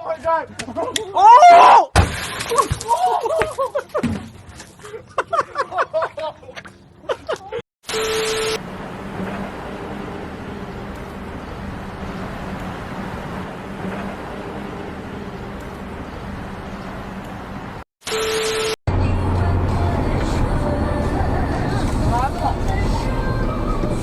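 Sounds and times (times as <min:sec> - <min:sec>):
road noise: 0:02.8 - 0:24.0
vehicle engine: 0:07.9 - 0:17.8, 0:18.9 - 0:24.0.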